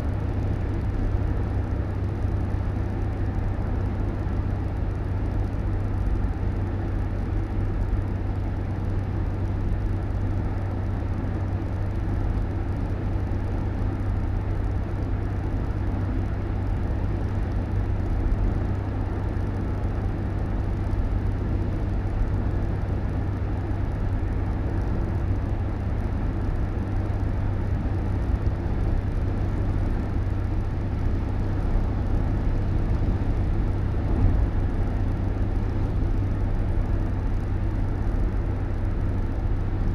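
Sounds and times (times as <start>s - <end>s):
road vehicle engine and tyre rumble: 0.0s - 39.9s.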